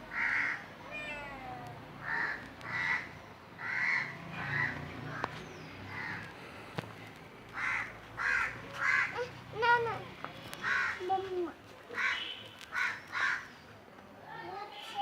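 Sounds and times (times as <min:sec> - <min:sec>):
crows cawing: 0:00.1 - 0:00.6, 0:02.0 - 0:05.3, 0:05.9 - 0:06.3, 0:07.5 - 0:09.3, 0:10.6 - 0:11.1, 0:12.0 - 0:13.5.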